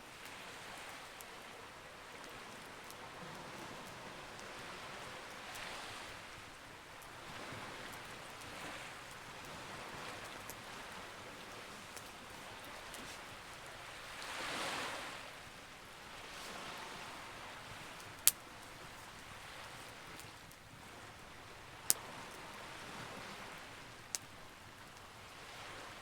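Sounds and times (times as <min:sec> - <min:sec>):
sea waves washing: 0:00.2 - 0:26.0
wood fire crackling: 0:17.8 - 0:20.7.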